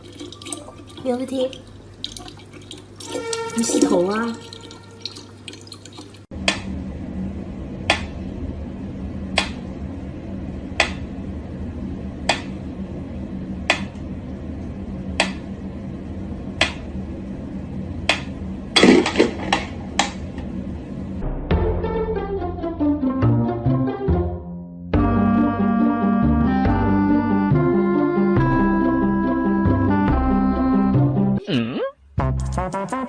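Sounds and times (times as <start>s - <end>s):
steady low hum: 6.2s - 21.5s.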